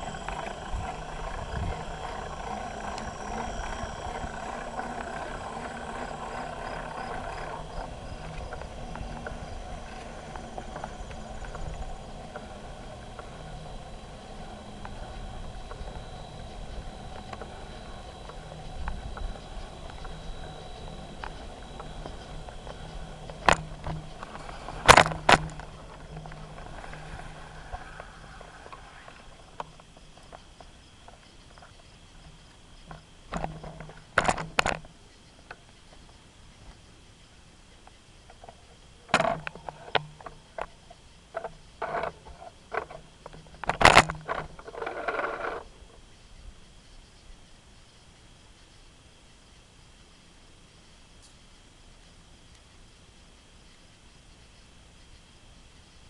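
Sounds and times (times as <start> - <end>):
bicycle tyres and wind rumble: 0.0 - 35.0
bike rattles and clicks: 0.0 - 36.8, 37.8 - 45.8
insects chirping: 0.0 - 56.0
bicycle knocks: 14.4 - 28.8.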